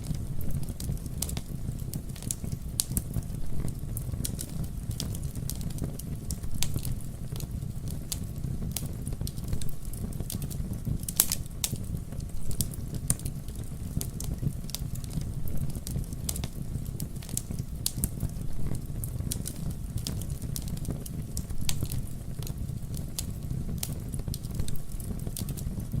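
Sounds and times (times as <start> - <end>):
fire crackling and popping: 0.0 - 26.0
wood fire low rumble: 0.0 - 26.0.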